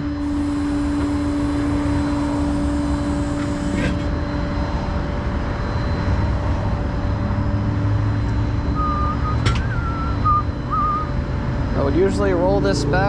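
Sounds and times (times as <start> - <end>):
truck engine rumbling: 0.0 - 5.4, 6.3 - 13.0
whistled notes: 8.6 - 11.2.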